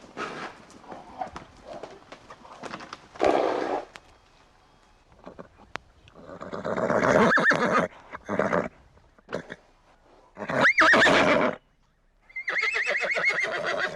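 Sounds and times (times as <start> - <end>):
horse neighing: 5.2 - 8.7, 10.4 - 11.6, 12.3 - 13.9.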